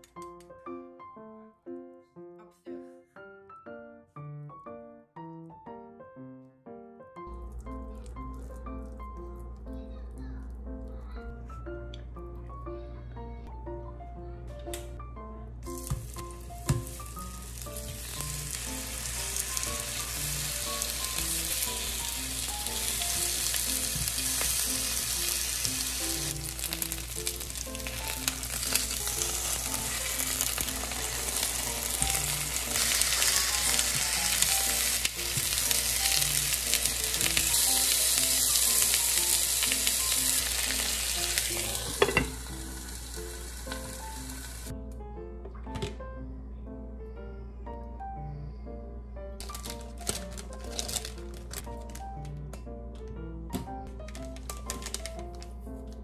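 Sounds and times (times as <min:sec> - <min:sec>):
dumplings sizzling in oil: 0:15.8 - 0:44.7.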